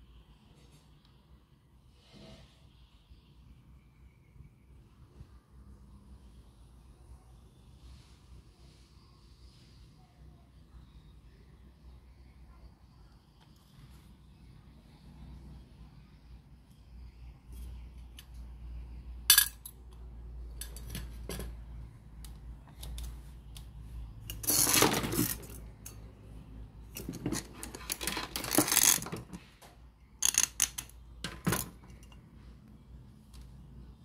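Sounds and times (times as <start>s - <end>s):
small metal objects rattling: 24.3s - 26.0s, 26.9s - 29.4s, 30.2s - 32.2s.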